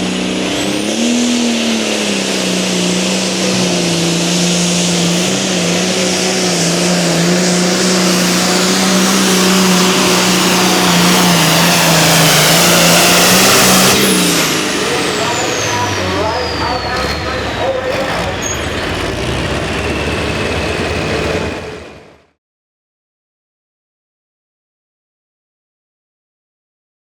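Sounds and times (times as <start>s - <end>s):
engine at high revs under load: 0.0s - 22.4s.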